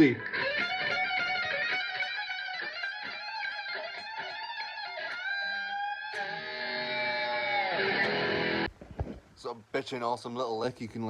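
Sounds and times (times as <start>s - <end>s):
electric guitar fast lick: 0.0s - 8.7s.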